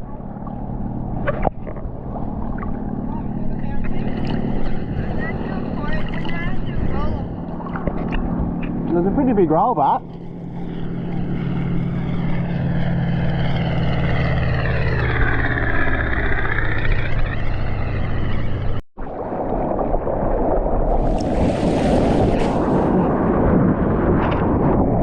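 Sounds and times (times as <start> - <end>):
surf and rushing water: 0.0 - 11.3, 19.0 - 25.0
churning rushing water: 0.0 - 15.0, 19.0 - 25.0
steady low hum: 0.0 - 24.2
sharp water splashes: 2.3 - 8.8, 19.0 - 24.1.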